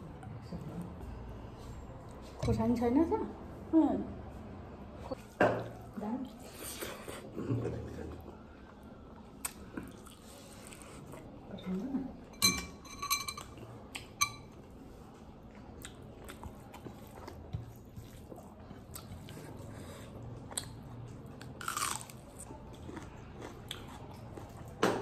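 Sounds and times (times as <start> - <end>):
person chewing food: 8.0 - 11.4, 13.5 - 24.8.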